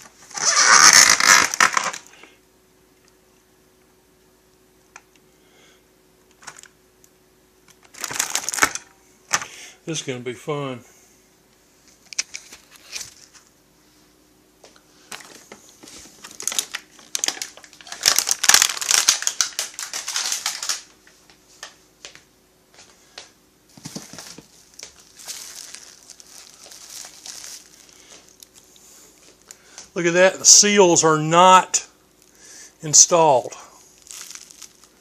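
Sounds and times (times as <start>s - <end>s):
plastic packaging crinkling: 0.0s - 2.2s, 7.8s - 8.9s, 15.1s - 21.7s, 23.7s - 29.6s, 33.8s - 35.0s.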